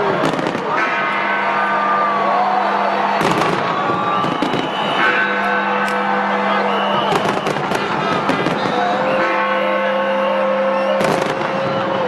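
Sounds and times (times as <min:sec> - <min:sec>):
fireworks banging and crackling: 0:00.0 - 0:01.0, 0:03.2 - 0:06.0, 0:06.9 - 0:09.2, 0:11.0 - 0:12.0
crowd noise: 0:00.0 - 0:12.0
music: 0:03.1 - 0:12.0.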